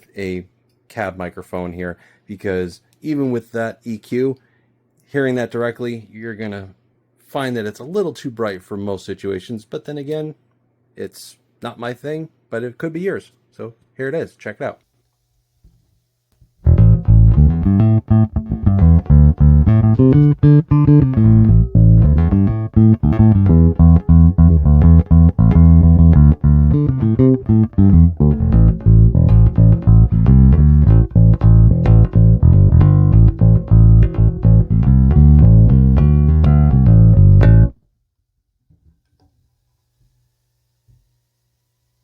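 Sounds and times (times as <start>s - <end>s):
electric bass line: 16.6s - 37.8s.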